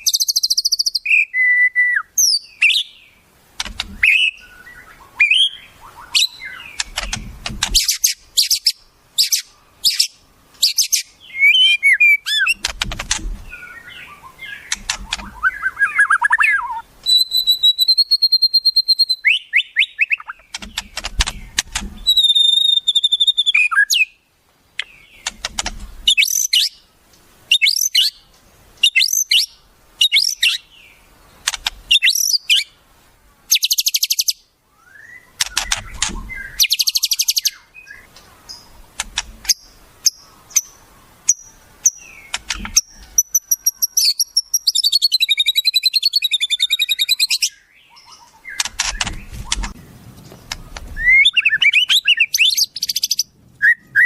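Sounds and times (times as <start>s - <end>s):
songbirds twittering: 0.0s - 54.0s
bird long whistles: 15.4s - 20.3s, 22.0s - 24.1s, 28.8s - 30.6s, 51.0s - 54.0s
bird short chirps: 22.0s - 24.0s.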